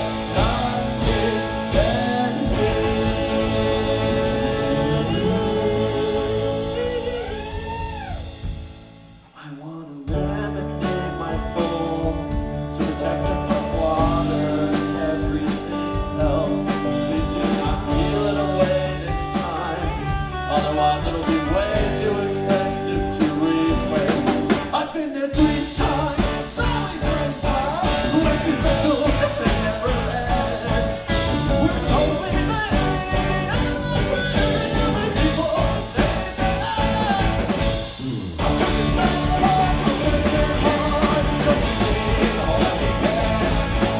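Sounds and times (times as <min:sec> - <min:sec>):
rock band playing live: 0:00.0 - 0:09.2, 0:10.1 - 0:43.9.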